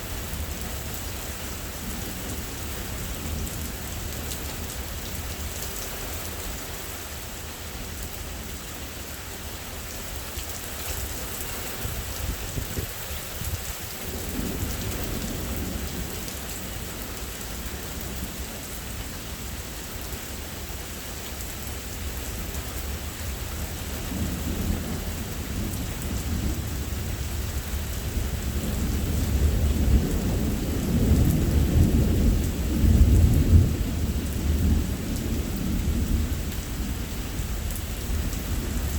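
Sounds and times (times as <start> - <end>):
heavy rain: 0.0 - 38.9
thunder rumbling: 24.0 - 38.9.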